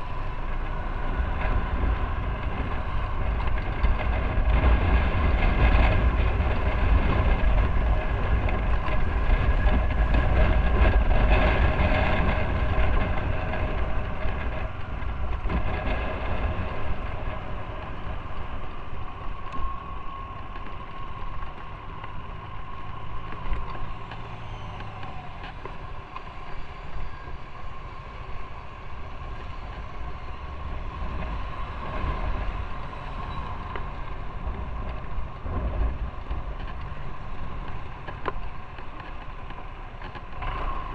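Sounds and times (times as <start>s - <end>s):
wind rush on microphone: 0.0s - 40.9s.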